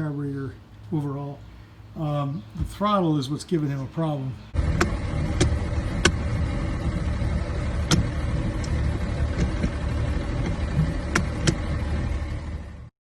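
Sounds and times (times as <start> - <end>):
loud mechanical rumble: 4.0 - 12.9
sharp clicks: 4.8 - 6.2, 7.8 - 9.8, 10.4 - 11.6.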